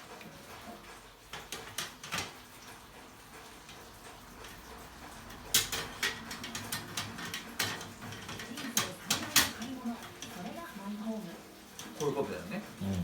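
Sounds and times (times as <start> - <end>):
hard objects clicking and clinking: 5.3 - 10.5.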